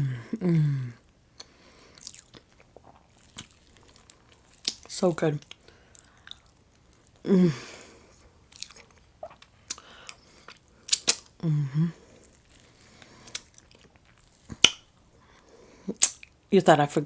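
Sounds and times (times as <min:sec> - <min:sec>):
person humming: 0:00.0 - 0:01.0, 0:07.3 - 0:07.8, 0:11.4 - 0:12.0
person chewing: 0:01.0 - 0:16.4.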